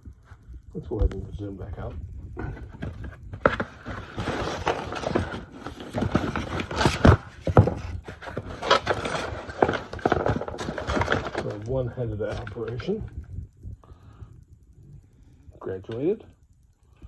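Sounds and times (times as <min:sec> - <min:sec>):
gun parts clicking and rubbing: 0:02.2 - 0:13.3.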